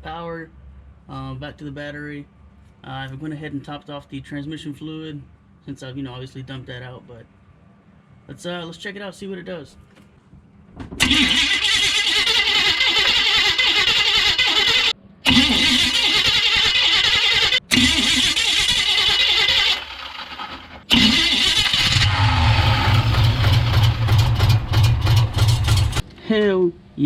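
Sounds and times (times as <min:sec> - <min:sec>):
starter cranking engine: 0:11.0 - 0:26.0
engine running: 0:11.0 - 0:26.1.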